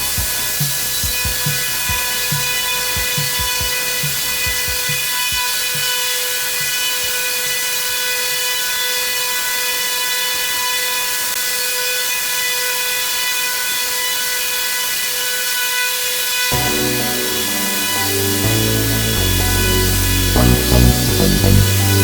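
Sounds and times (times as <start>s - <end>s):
music with a beat: 0.0s - 7.6s.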